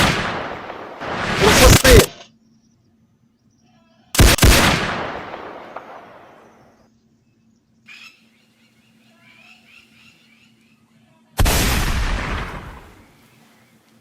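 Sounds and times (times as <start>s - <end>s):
rifle shots echoing: 0.0s - 2.1s, 4.2s - 6.6s, 11.4s - 13.0s
faint bird calls: 5.8s - 11.4s.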